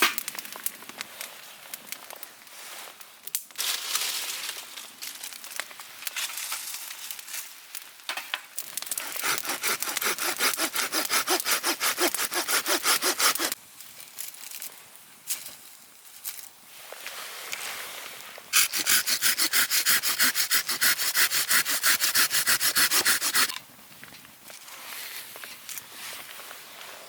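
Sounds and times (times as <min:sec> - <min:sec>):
hand saw cutting wood: 0:08.9 - 0:13.6, 0:18.6 - 0:23.6.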